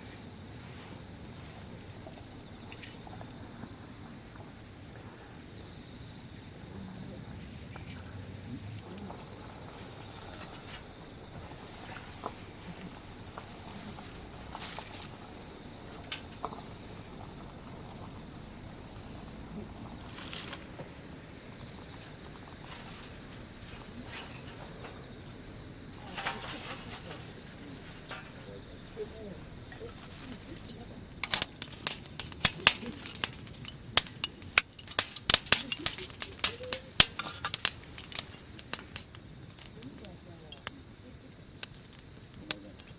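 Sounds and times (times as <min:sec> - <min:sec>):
crickets trilling: 0:00.0 - 0:42.9
short clicks and crackles: 0:31.2 - 0:40.8.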